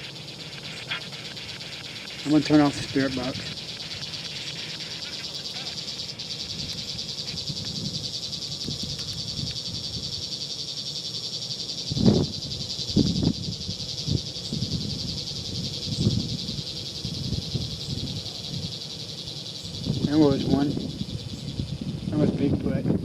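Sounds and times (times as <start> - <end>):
insects calling: 0.0 - 23.0.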